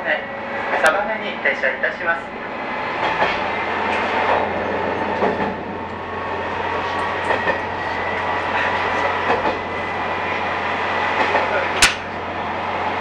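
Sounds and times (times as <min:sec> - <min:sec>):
railcar engine and rolling noise: 0:00.0 - 0:13.0
wheel knocks over rail joints: 0:11.8 - 0:12.2.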